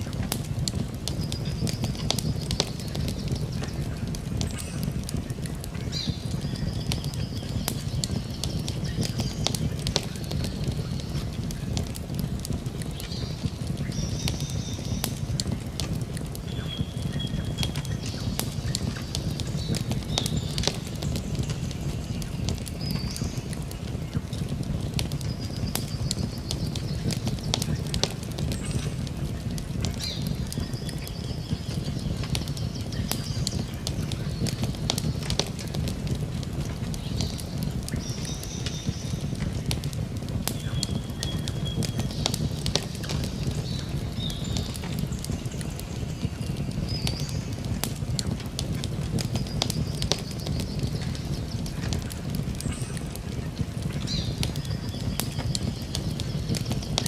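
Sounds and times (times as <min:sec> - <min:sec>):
campfire crackling: 0:00.0 - 0:57.0
whistled bird notes: 0:40.6 - 0:47.6.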